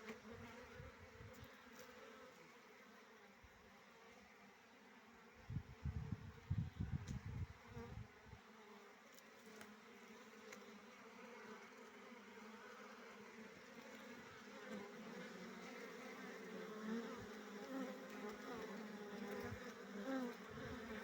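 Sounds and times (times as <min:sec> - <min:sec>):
bees buzzing: 0:09.4 - 0:21.0.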